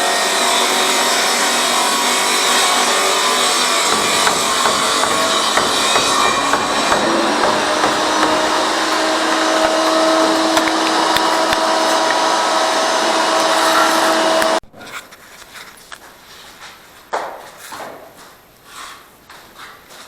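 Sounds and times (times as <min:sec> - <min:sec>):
power tool cutting: 0:00.0 - 0:14.6.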